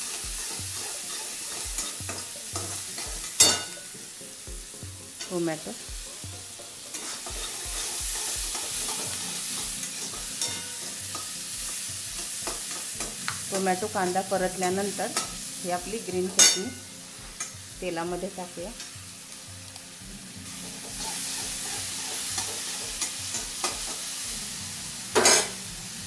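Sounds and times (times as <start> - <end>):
metal spatula scraping a pan: 0.0 - 4.4, 5.1 - 15.6, 16.3 - 17.6, 20.4 - 24.2, 25.1 - 25.7
food sizzling: 0.0 - 26.0.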